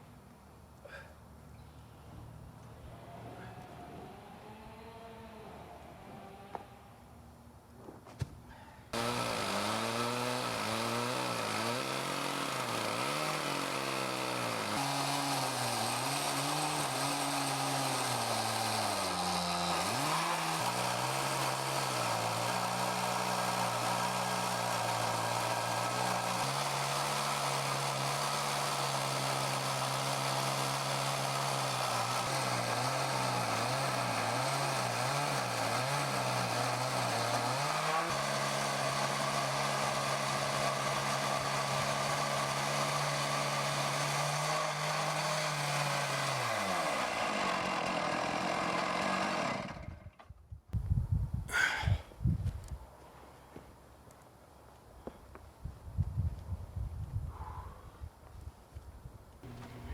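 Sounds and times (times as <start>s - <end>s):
chainsaw cutting log: 3.0s - 6.8s, 8.9s - 50.4s, 59.4s - 59.9s.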